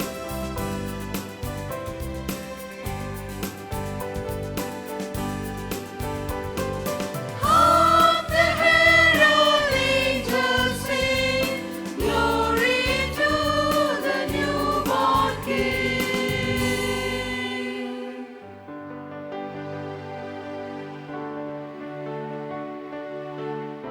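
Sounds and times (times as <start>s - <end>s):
instrumental backing music: 0.0s - 17.6s
group singing a christmas song: 7.4s - 18.7s.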